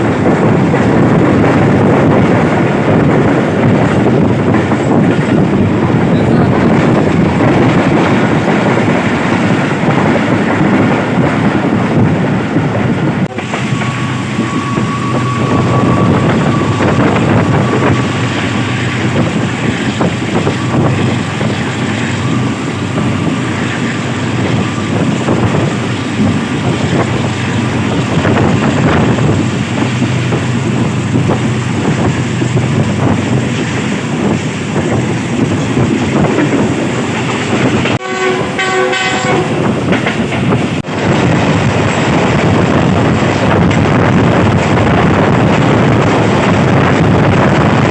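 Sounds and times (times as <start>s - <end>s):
train wheels rumbling on rails: 0.0s - 47.9s
train horn: 13.3s - 19.1s, 37.9s - 39.8s.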